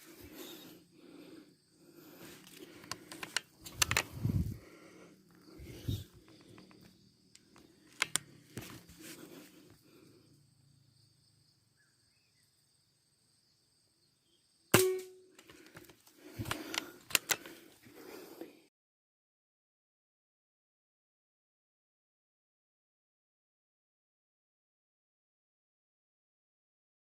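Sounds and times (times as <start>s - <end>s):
clicks and rustling: 2.4s - 4.6s, 5.6s - 9.2s, 15.4s - 17.6s
gunshot crack: 14.8s - 15.2s.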